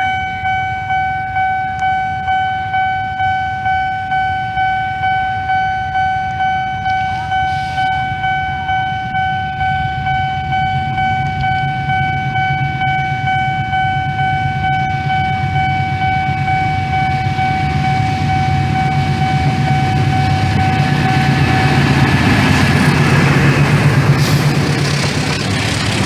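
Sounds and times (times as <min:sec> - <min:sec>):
locomotive engine rumble: 0:00.0 - 0:26.0
train wheels on rails: 0:00.0 - 0:26.0
locomotive horn blast: 0:06.7 - 0:08.4.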